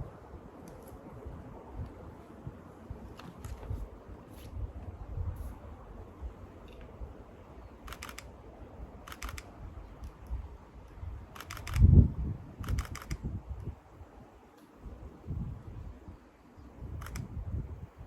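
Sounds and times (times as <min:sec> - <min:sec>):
camera shutter clicking: 0:07.9 - 0:08.4, 0:09.1 - 0:10.2, 0:11.3 - 0:12.0, 0:12.6 - 0:13.2, 0:17.0 - 0:17.3.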